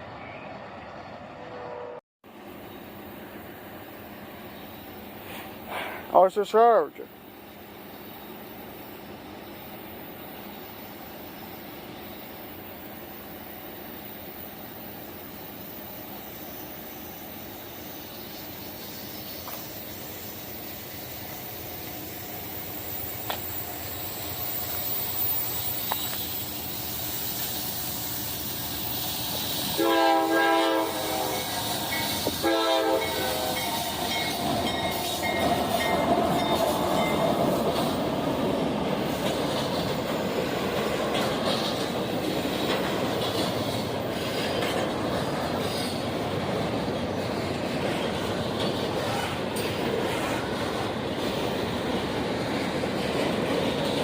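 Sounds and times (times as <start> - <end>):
train passing with wheel noise: 0.0 - 54.0
locomotive horn blasts: 1.4 - 2.0, 29.7 - 34.0.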